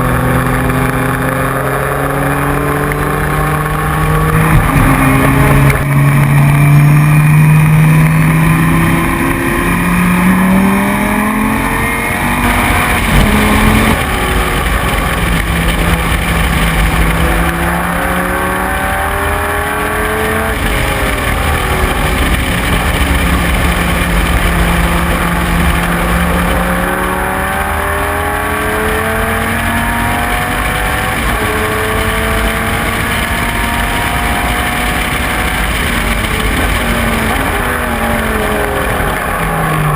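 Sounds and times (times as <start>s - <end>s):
racing car engine accelerating: 0.0s - 39.9s.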